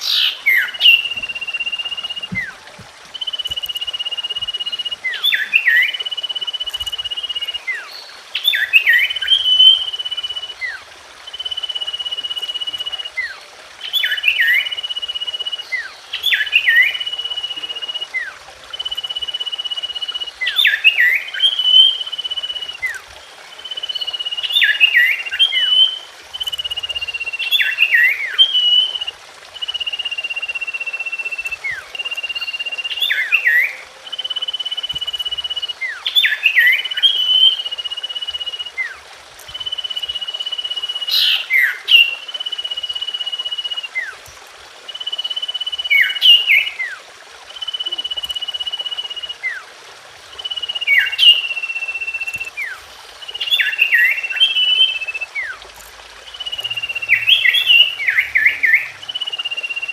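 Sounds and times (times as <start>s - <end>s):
bird song high whistle: 0.0s - 44.2s, 44.9s - 49.6s, 50.3s - 55.6s, 56.3s - 59.9s.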